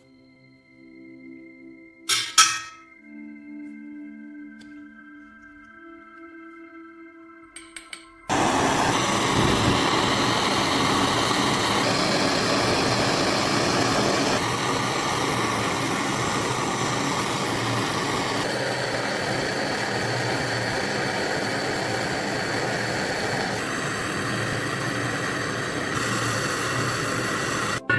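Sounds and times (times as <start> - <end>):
motor-driven workshop tool running: 8.3 - 27.9.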